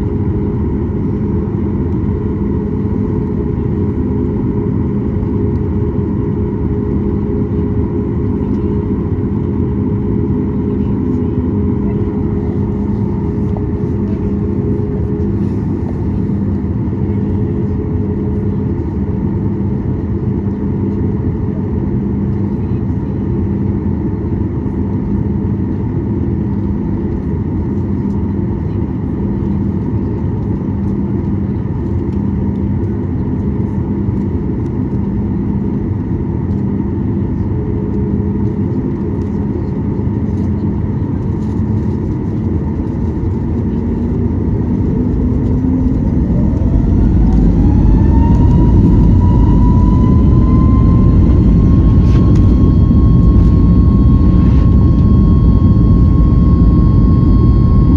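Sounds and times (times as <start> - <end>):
jet engines droning: 0.0 - 19.6, 26.1 - 57.9
jet engine whine rising: 37.9 - 57.9.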